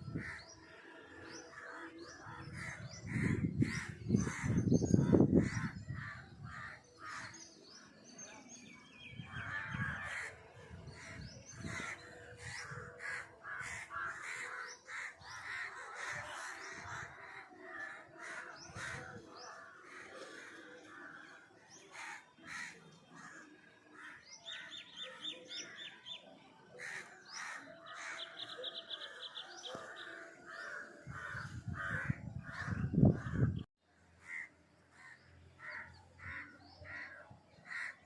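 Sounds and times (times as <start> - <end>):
crows cawing: 11.6 - 21.2, 21.9 - 25.1, 26.8 - 33.5, 34.2 - 38.0.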